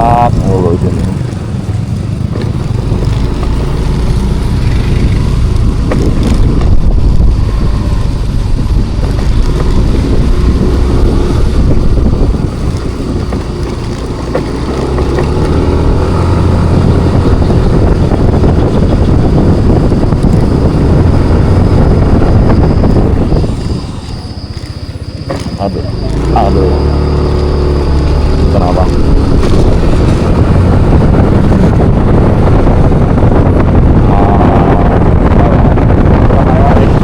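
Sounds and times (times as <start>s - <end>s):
scooter engine: 0.0s - 37.0s
wind rushing over microphone: 0.0s - 37.0s.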